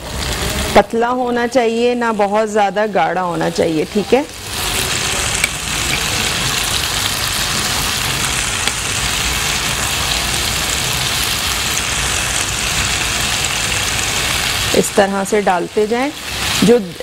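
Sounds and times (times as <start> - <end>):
fritters sizzling in hot oil: 0.0 - 17.0
small oil crackles: 4.2 - 14.9.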